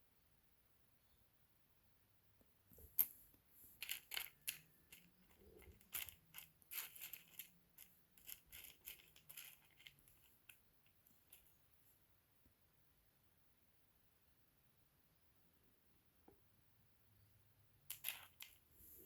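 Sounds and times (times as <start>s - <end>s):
stone chips clicking and rustling: 3.8s - 11.5s, 17.9s - 18.6s.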